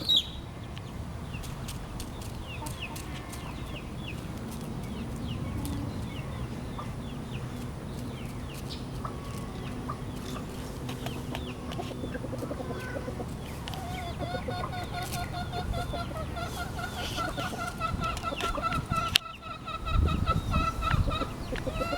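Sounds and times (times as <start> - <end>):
bird chirping: 0.0 - 21.9.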